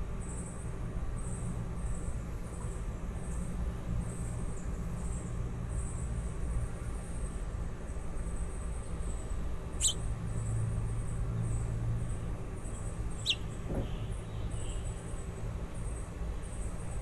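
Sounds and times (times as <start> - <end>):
baby birds chirping: 9.8 - 10.0, 12.7 - 13.6.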